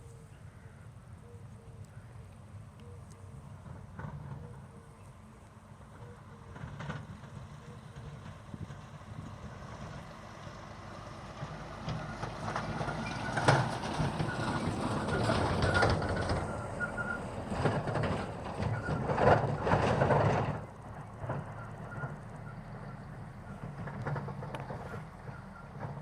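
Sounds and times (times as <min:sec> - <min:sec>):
thin wheel squeal: 0:12.1 - 0:17.4, 0:18.2 - 0:20.0.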